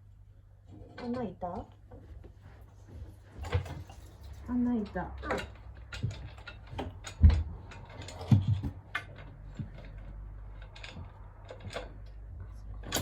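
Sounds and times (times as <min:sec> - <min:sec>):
clicks and knocks of parts handled: 0:05.3 - 0:13.0.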